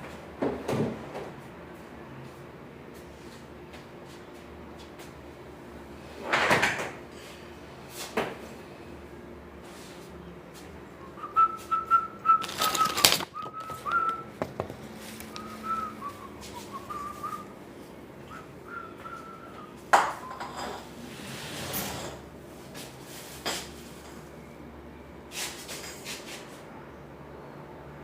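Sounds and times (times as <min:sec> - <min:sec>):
person whistling a tune: 0:11.0 - 0:14.4, 0:15.3 - 0:17.6, 0:18.3 - 0:20.4.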